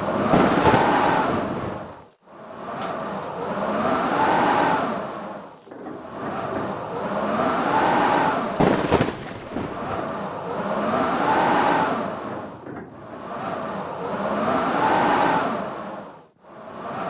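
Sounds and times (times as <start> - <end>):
sharp crackles: 0.0 - 1.9, 8.6 - 10.0
blizzard wind howling in gusts: 0.0 - 17.0.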